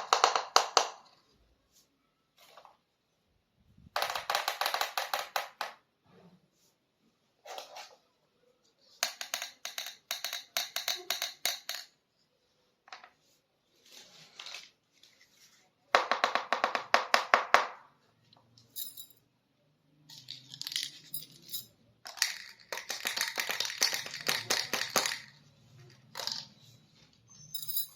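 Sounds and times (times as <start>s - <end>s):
plastic toy pieces clattering: 20.1s - 26.6s.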